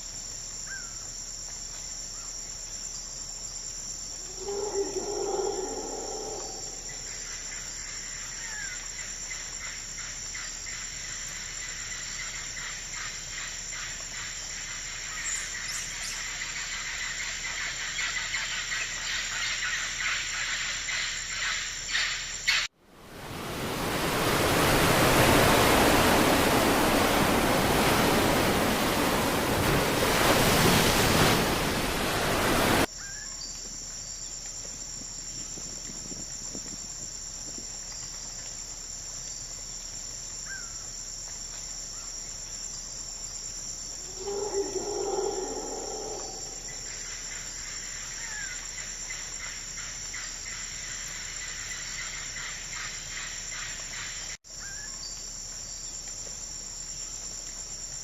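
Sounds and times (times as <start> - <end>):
insects chorus: 0.0 - 58.0
animal call: 4.3 - 7.2, 44.0 - 46.9.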